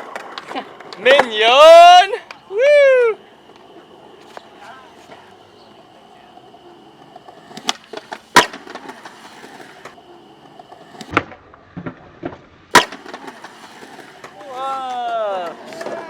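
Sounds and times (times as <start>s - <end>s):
skateboard deck cracking on pavement: 0.0s - 16.0s
skateboard wheels rolling: 0.0s - 16.0s.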